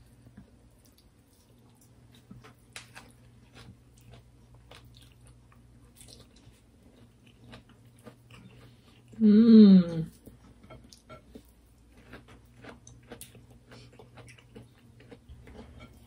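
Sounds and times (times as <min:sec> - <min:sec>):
faint steady hum: 0:00.0 - 0:16.0
people chewing food: 0:00.0 - 0:16.0.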